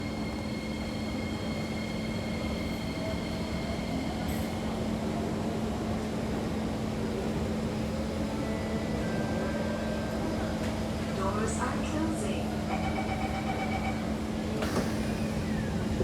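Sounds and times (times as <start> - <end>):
train rumble and hum: 0.0 - 16.0.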